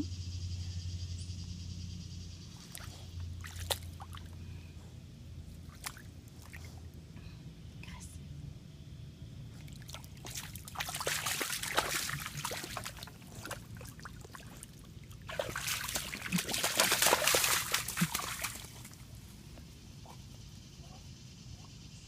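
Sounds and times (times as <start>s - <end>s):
dog splashing in a puddle: 2.6s - 4.4s, 5.6s - 6.6s, 9.6s - 19.2s.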